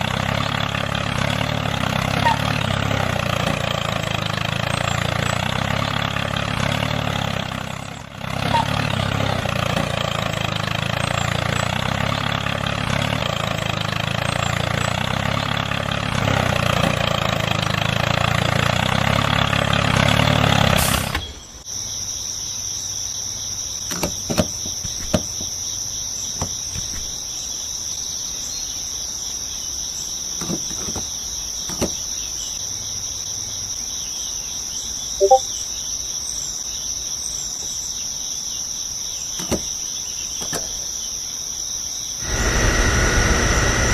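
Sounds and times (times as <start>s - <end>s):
crickets chirping: 21.6s - 42.2s
small motor running: 42.2s - 43.9s.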